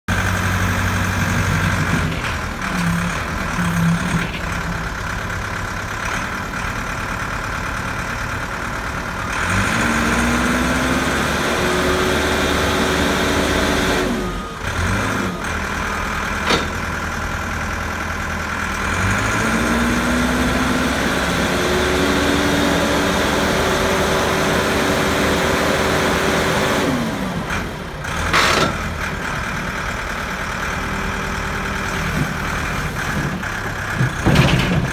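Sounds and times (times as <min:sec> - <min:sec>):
diesel engine revving and idling: 0:00.1 - 0:34.9.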